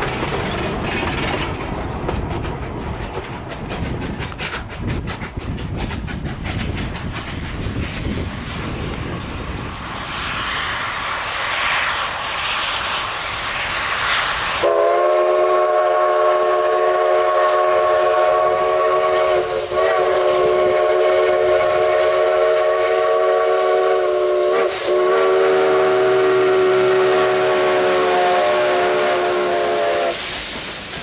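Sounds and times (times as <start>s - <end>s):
steam hiss: 0.0s - 31.0s
steam locomotive whistle blast: 13.6s - 31.0s.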